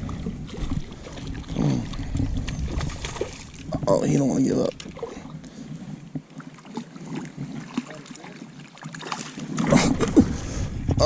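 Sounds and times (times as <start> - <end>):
fish splashing: 0.0 - 3.7, 6.3 - 10.4
water sloshing: 0.0 - 10.8.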